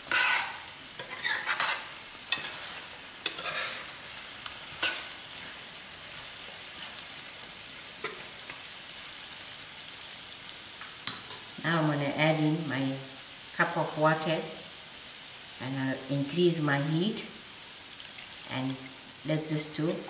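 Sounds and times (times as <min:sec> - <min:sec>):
metal spoon stirring and scraping: 0:00.0 - 0:03.9, 0:04.8 - 0:05.1
curry sizzling in oil: 0:00.0 - 0:20.0.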